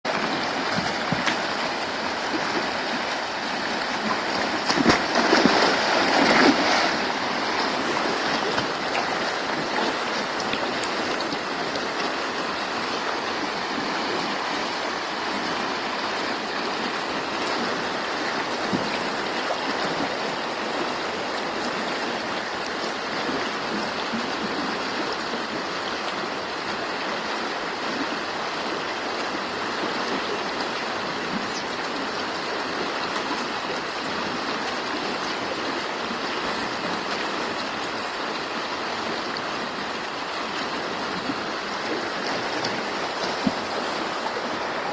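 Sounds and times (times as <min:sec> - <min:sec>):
water splashing: 0:00.1 - 0:23.1, 0:38.7 - 0:44.9
river water rushing: 0:00.1 - 0:44.9.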